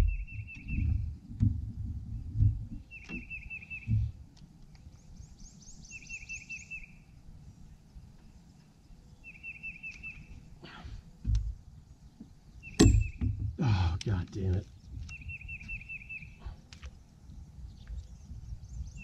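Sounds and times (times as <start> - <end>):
low thumps: 0.0 - 4.2, 11.2 - 15.1.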